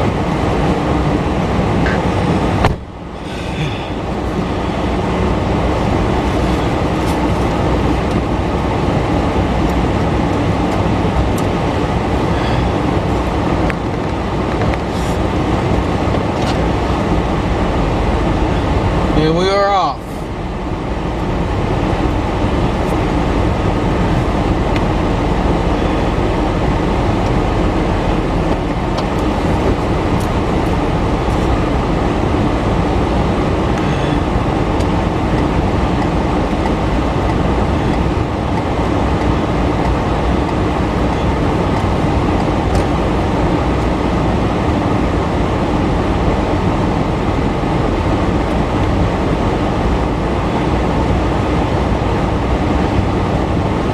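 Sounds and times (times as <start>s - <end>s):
train wheels rumbling on rail: 0.0s - 53.9s.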